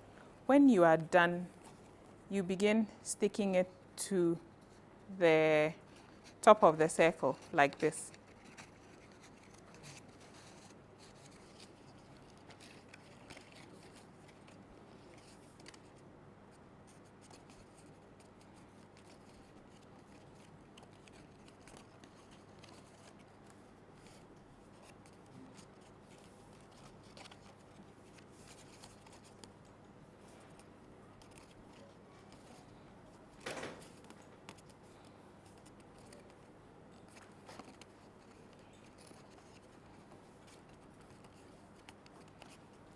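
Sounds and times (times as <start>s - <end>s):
paper rustling: 7.3s - 16.0s, 16.9s - 29.6s, 30.2s - 32.8s, 33.4s - 42.8s
paper clicks: 7.4s - 16.0s, 16.9s - 29.6s, 30.5s - 32.8s, 33.4s - 42.7s.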